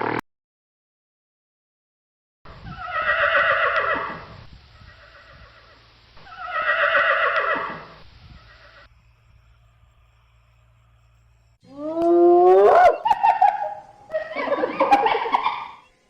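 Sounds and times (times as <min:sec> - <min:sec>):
horse whinnying: 0:02.6 - 0:04.3, 0:04.9 - 0:08.9.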